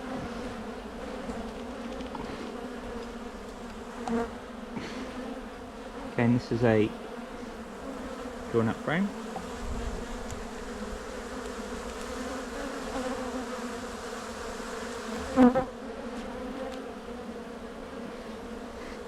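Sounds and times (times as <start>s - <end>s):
honey bees buzzing: 0.0s - 19.0s.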